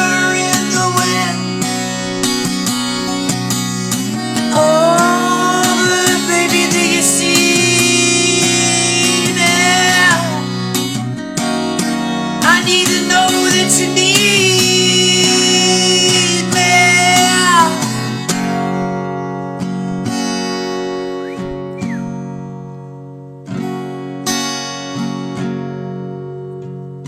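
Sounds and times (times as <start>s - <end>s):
person singing: 0.0s - 10.7s, 12.4s - 18.2s
acoustic guitar strumming: 0.0s - 27.0s.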